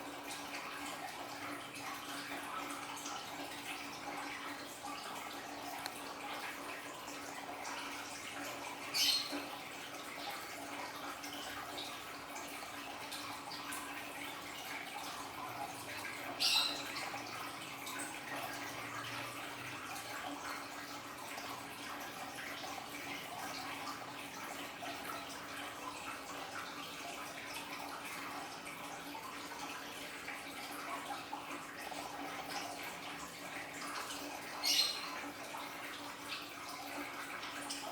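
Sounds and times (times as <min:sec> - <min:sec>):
aquarium waterfall trickling: 0:00.0 - 0:37.9
water drips: 0:00.0 - 0:37.9.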